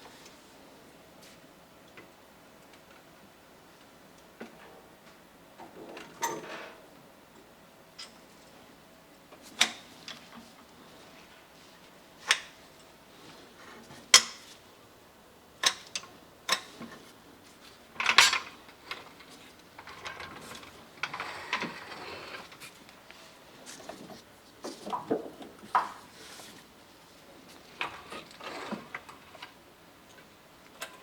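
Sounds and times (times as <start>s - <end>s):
metal scraping and rattling: 18.0s - 22.8s.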